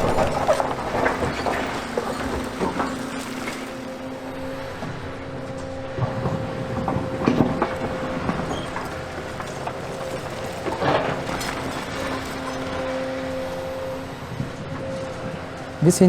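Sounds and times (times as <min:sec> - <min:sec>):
rubble clattering and scraping: 0:00.0 - 0:04.1, 0:06.0 - 0:14.6
excavator engine running: 0:00.0 - 0:16.0.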